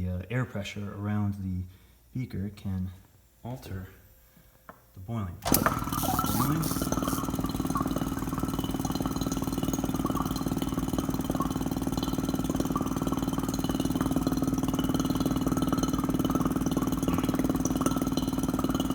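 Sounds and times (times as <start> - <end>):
vacuum pump humming and pulsing: 5.4 - 18.9.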